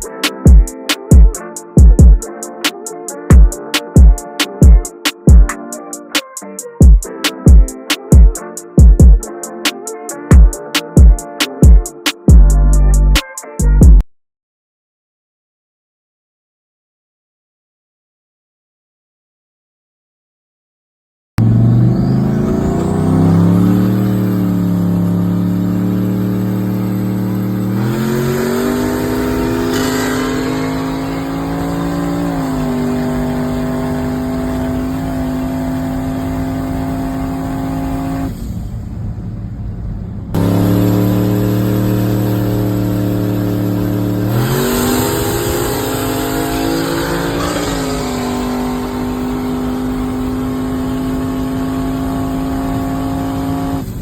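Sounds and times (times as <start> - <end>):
motorcycle engine revving high: 21.4 - 38.7, 40.4 - 54.0.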